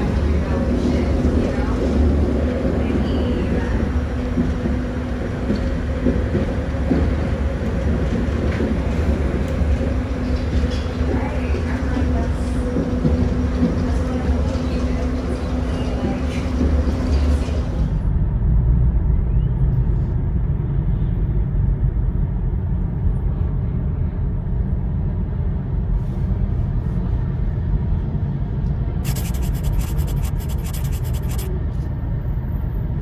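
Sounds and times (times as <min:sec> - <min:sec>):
train car rumble: 0:00.0 - 0:19.2.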